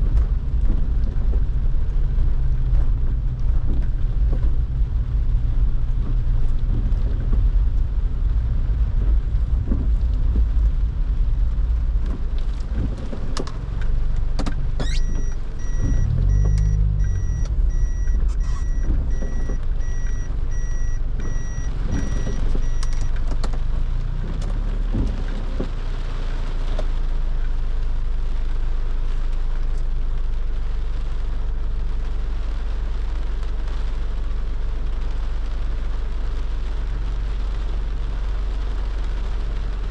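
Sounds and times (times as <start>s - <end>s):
low engine rumble: 0.0s - 39.9s
road and rain noise: 0.0s - 39.9s
quick electronic beeps: 14.8s - 23.1s.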